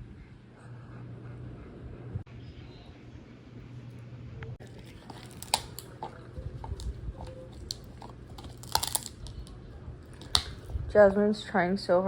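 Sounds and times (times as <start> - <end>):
dog chewing crunches: 4.6 - 11.0.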